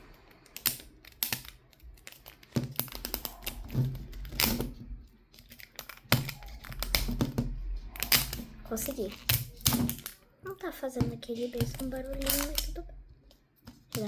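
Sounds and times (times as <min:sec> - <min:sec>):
plastic wrapper crinkling and tearing: 0:00.1 - 0:04.6, 0:05.2 - 0:10.2.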